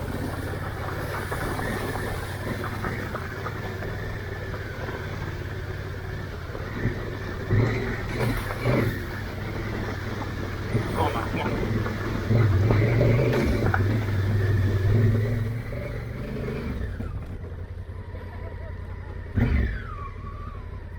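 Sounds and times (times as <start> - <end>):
motorcycle engine running: 0.0 - 20.9
motorcycle throttle bursts: 6.7 - 17.2.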